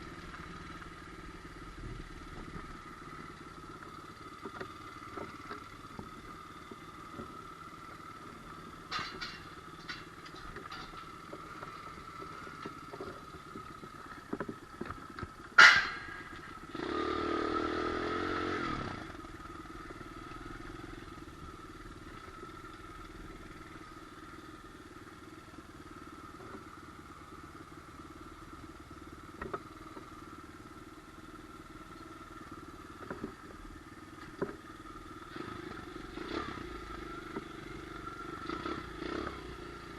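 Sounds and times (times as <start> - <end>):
pit bike engine running: 0.0 - 39.9
sharp loud clack: 15.6 - 16.4.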